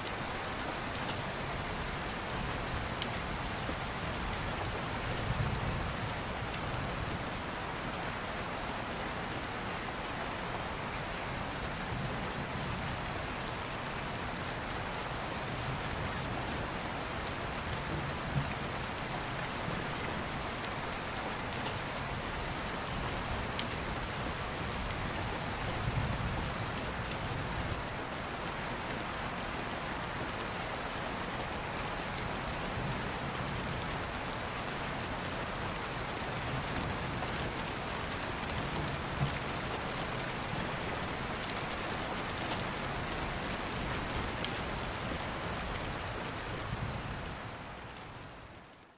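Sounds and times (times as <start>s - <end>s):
open fire crackles: 0.0s - 7.5s, 13.5s - 28.4s, 32.9s - 48.1s
steady rain: 0.0s - 48.9s.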